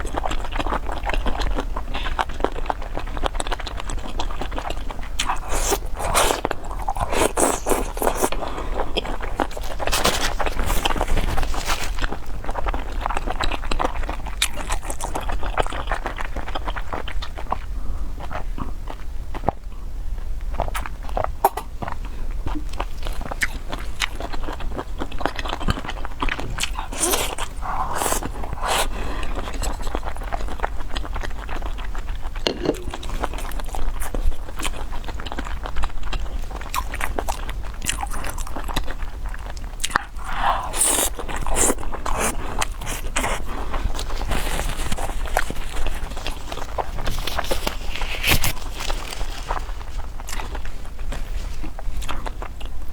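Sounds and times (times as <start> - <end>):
person chewing and biting: 0.0 - 19.6, 20.5 - 52.8
steady low hum: 19.7 - 36.8.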